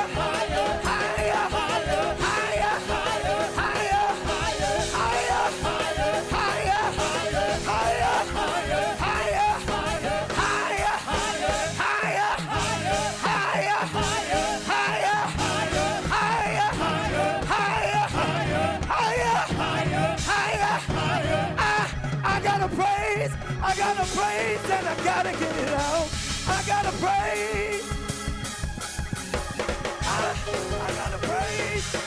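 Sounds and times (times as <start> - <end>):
people shouting: 0.0 - 22.0
gospel band and singing: 0.0 - 32.0.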